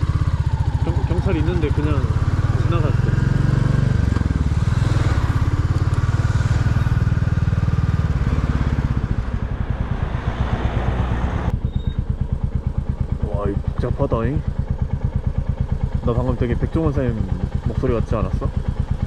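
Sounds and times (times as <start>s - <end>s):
motorcycle engine running: 0.0s - 19.0s
wind noise: 8.2s - 11.5s.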